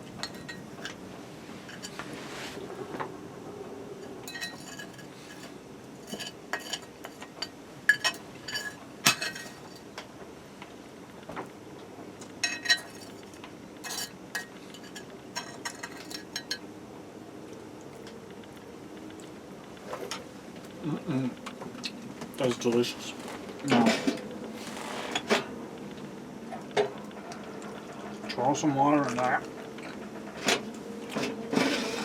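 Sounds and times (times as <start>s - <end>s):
metal utensil clinking on pot: 0.2s - 1.0s, 4.2s - 9.8s, 12.4s - 13.2s, 13.8s - 16.6s.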